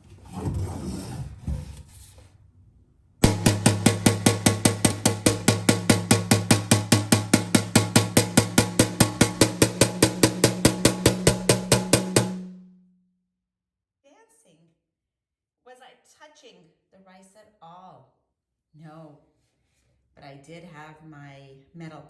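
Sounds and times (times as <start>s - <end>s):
metal spoon beating a metal pan: 3.2s - 12.7s.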